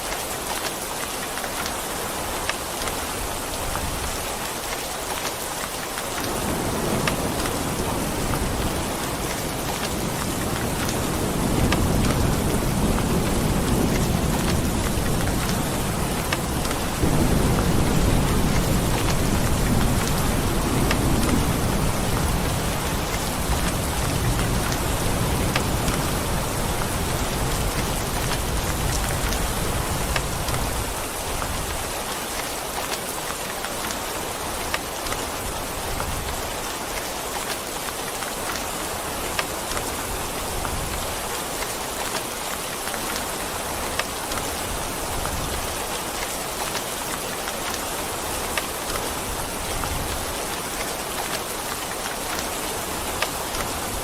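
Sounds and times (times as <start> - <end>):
rain falling: 0.0 - 54.0
thunder rumbling: 6.2 - 31.7.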